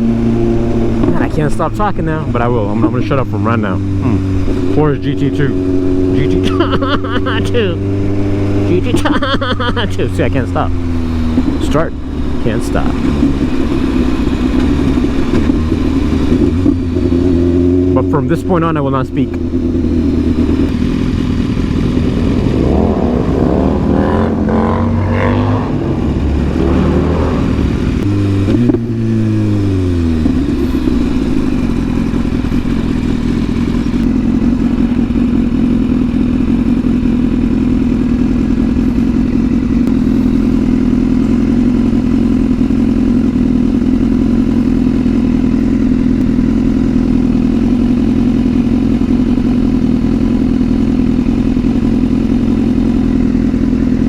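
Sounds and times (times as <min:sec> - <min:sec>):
sport bike engine: 0:00.0 - 0:54.0.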